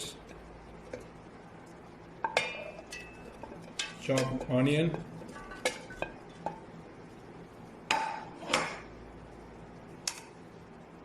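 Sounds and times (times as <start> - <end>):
utensils and dishes clinking: 2.2 - 6.5.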